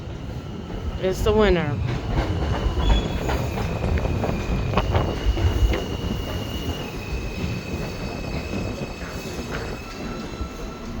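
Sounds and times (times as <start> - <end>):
low train rumble: 0.0 - 11.0
rail clicks: 0.7 - 11.0
train wheel squeal: 2.3 - 11.0.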